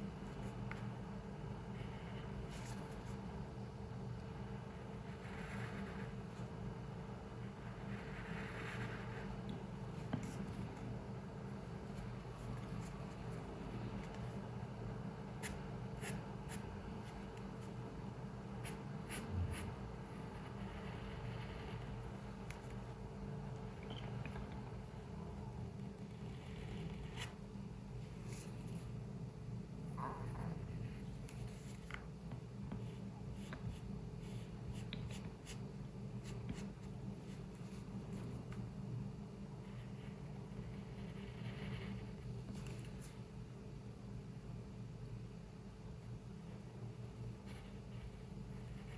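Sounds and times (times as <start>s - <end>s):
low room hum: 0.0s - 48.9s
pencil scratching on paper: 4.4s - 6.5s, 7.4s - 9.4s, 18.5s - 23.0s, 26.0s - 27.4s, 39.6s - 43.1s, 47.2s - 48.9s.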